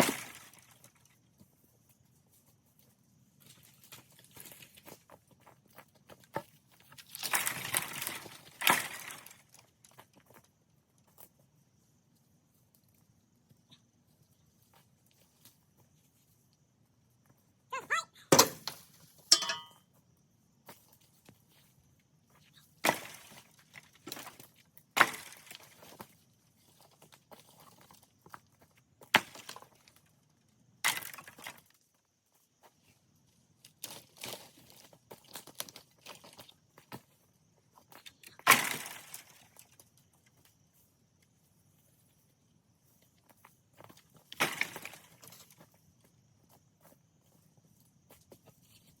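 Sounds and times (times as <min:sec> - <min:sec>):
sharp clinks and cracks: 0:18.3 - 0:19.9.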